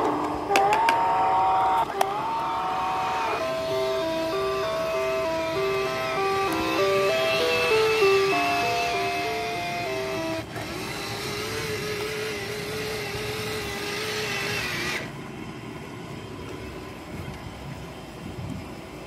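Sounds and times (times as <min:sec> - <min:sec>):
long steady electronic tone: 0:00.0 - 0:10.6
small motor whirring: 0:01.7 - 0:15.2
toy train electronic jingle: 0:03.1 - 0:10.9.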